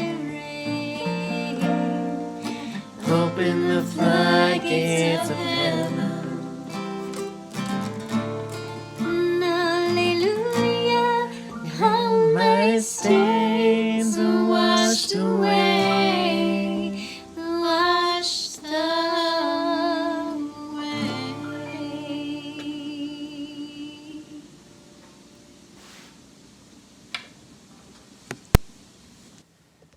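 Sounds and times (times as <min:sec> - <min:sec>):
women singing: 0:00.0 - 0:07.1, 0:09.0 - 0:24.5
guitar: 0:00.0 - 0:25.8.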